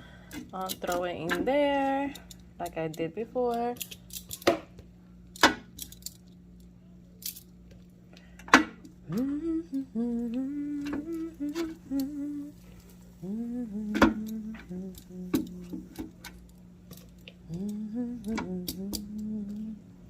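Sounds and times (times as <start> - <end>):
woman humming a tune: 9.0 - 12.6, 13.2 - 16.0, 17.4 - 19.9.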